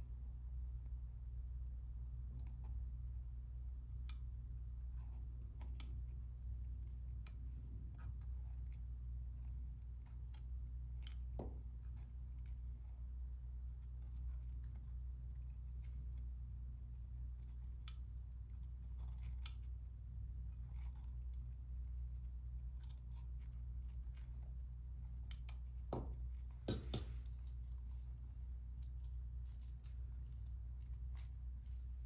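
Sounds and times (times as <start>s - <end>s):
steady low hum: 0.0s - 32.0s
tool scraping and clicking: 26.4s - 27.9s.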